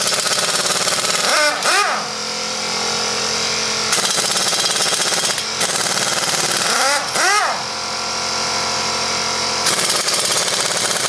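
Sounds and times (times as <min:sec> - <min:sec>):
impact wrench hammering: 0:00.0 - 0:02.3, 0:03.9 - 0:08.0, 0:09.6 - 0:11.0.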